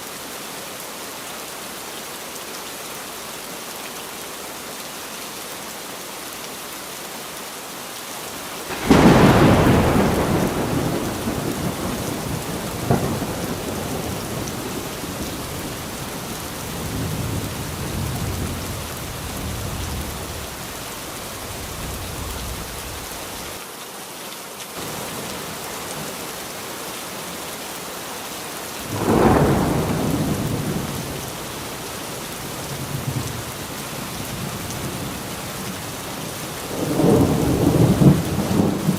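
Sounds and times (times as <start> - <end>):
steady rain falling: 0.0 - 38.9
thunder claps and rumbling: 8.7 - 23.5, 28.8 - 38.9.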